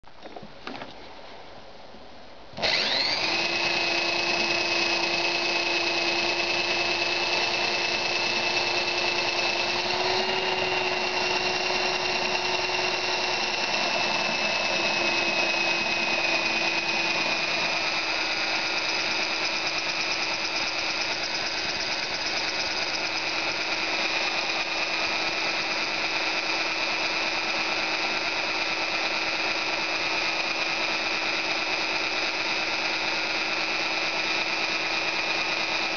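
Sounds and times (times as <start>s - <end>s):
electric drill motor whining: 2.6s - 35.9s.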